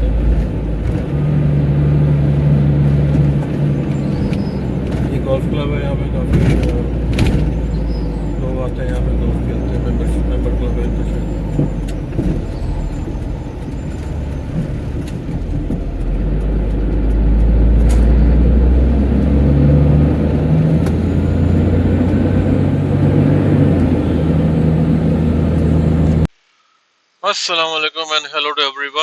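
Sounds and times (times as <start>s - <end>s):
car driving on slushy road: 0.0s - 26.3s.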